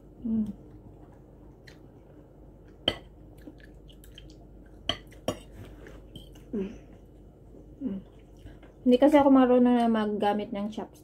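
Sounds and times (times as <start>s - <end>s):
chewing and mouth sounds: 0.4s - 8.8s.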